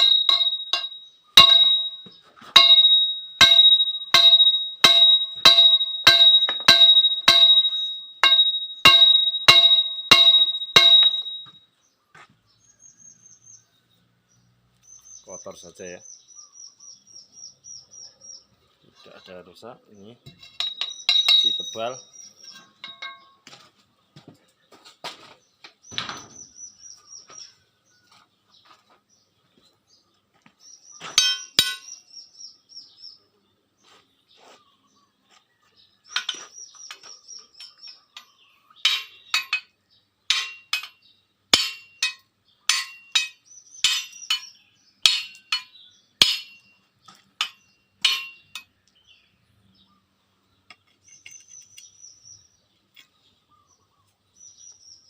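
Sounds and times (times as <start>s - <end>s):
metal clinks: 0.0s - 11.6s, 20.3s - 23.4s, 31.2s - 32.0s, 36.1s - 46.7s, 47.4s - 48.7s.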